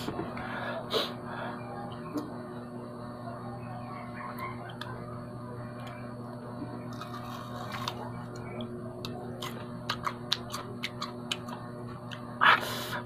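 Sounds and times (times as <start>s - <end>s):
person crunching fruit: 6.8s - 13.0s.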